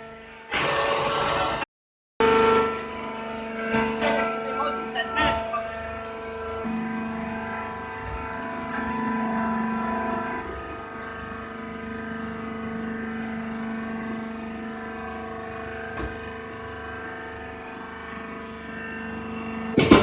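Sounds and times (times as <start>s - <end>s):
baling machine humming: 2.2s - 20.0s
sharp loud knock: 19.8s - 20.0s.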